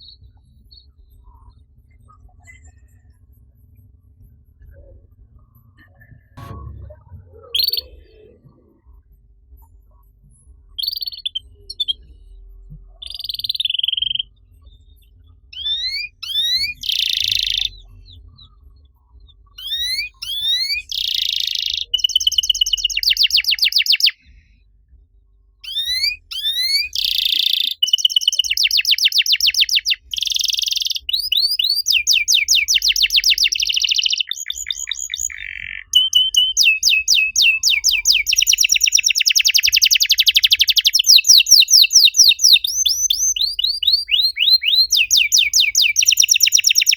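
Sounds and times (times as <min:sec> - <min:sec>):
canary singing trills: 0:07.2 - 0:08.8, 0:10.8 - 0:14.8, 0:15.5 - 0:18.6, 0:19.4 - 0:24.3, 0:25.6 - 0:46.9.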